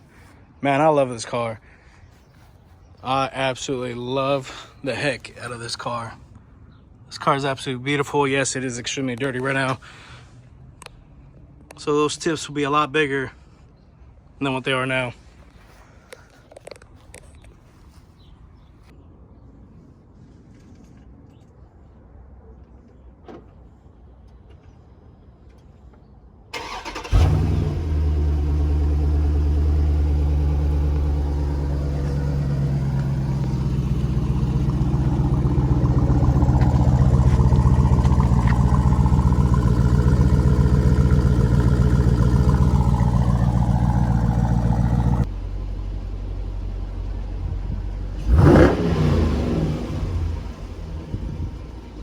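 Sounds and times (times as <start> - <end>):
engine cranking: 26.6 - 45.3
engine revving: 26.6 - 45.4, 47.2 - 52.0
car engine idling: 26.6 - 52.0.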